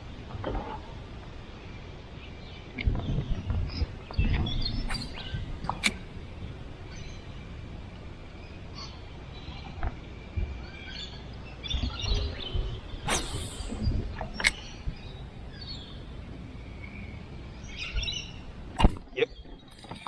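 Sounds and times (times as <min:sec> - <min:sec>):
low rumbling handling noise: 0:02.9 - 0:20.0
birds chirping and calling: 0:04.4 - 0:07.5, 0:11.0 - 0:18.8.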